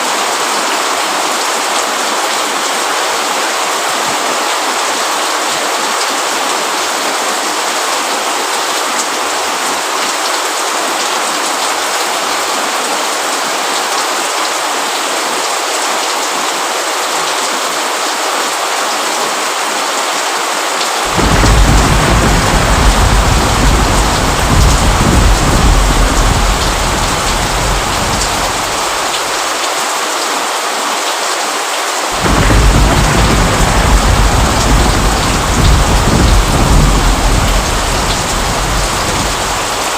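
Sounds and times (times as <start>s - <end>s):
steady rain falling: 0.0s - 39.9s
thunder rumbling: 21.1s - 29.4s, 32.2s - 39.9s.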